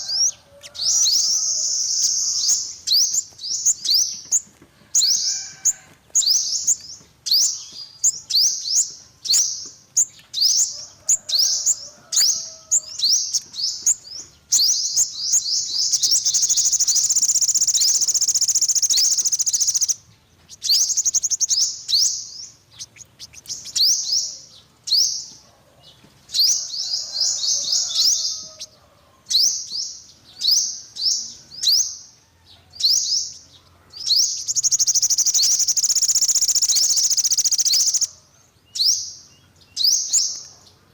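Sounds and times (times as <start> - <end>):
bird fast trill: 0.0 - 20.0, 20.6 - 24.3, 34.2 - 38.1
bird chips: 0.1 - 24.2, 34.2 - 38.1.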